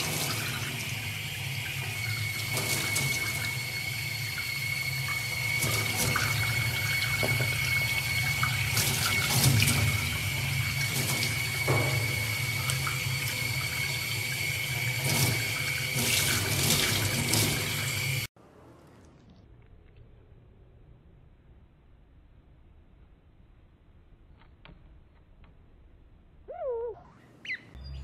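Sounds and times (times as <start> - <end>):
tap water splashing into sink: 0.0 - 18.3.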